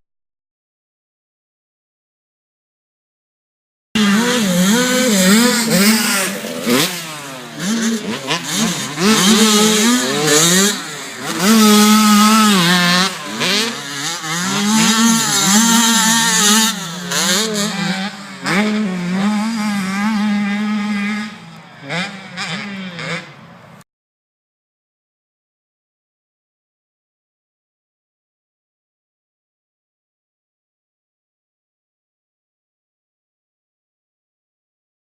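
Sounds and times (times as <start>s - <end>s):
dirt bike engines revving: 4.0s - 23.8s.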